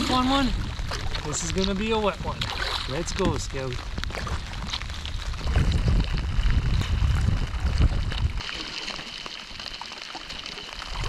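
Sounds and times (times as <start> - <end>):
wind buffeting microphone: 0.0 - 8.4
heavy rain on a lake: 0.0 - 11.0.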